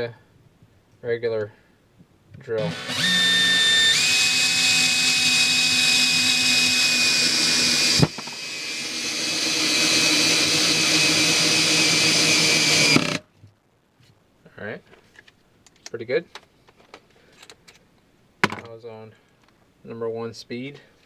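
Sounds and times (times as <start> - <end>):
drill motor whine: 2.6 - 13.2
sharp drill click: 2.6 - 13.2.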